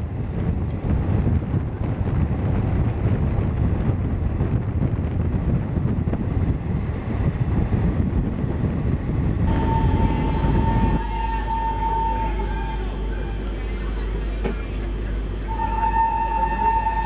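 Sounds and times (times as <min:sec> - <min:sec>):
wind buffeting microphone: 0:00.0 - 0:13.1
moving train rumble: 0:00.0 - 0:17.0
steady high tone: 0:09.5 - 0:17.0.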